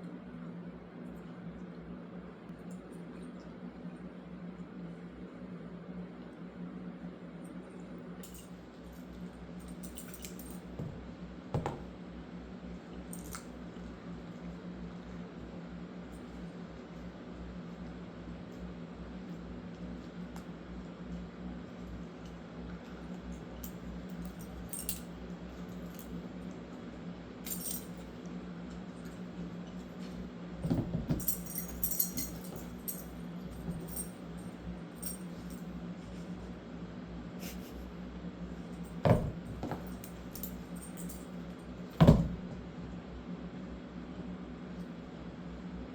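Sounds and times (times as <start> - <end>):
clicks and clinks: 9.6 - 11.0, 27.5 - 28.1, 31.0 - 34.2.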